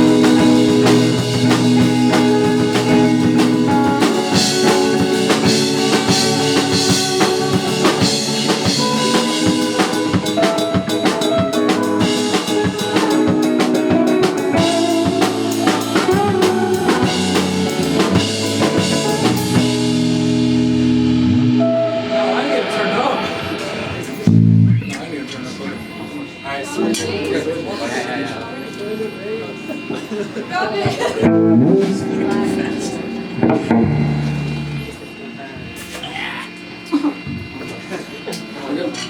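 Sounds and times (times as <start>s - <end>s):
drum kit hits: 0.0s - 24.7s
held low notes: 0.0s - 24.9s, 31.2s - 35.8s, 37.3s - 37.6s.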